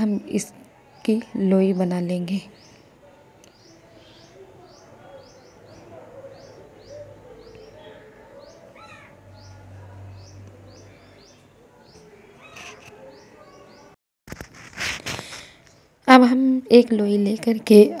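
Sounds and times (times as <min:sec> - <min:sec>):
small bird chirping: 0:00.9 - 0:13.9.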